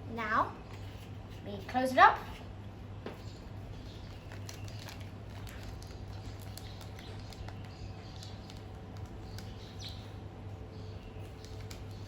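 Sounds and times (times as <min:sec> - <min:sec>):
steady low hum: 0:00.0 - 0:12.0
small clicks of bag sealing: 0:04.0 - 0:10.0, 0:11.2 - 0:12.0
plastic bag crinkling: 0:04.1 - 0:09.5.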